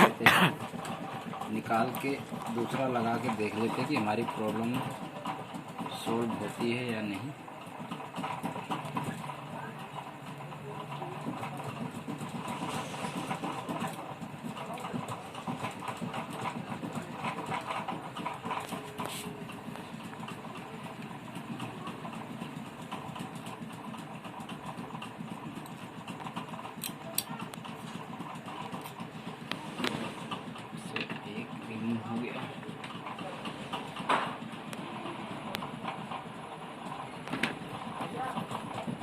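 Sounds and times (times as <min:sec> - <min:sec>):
tools clicking and rattling: 0:25.6 - 0:29.0.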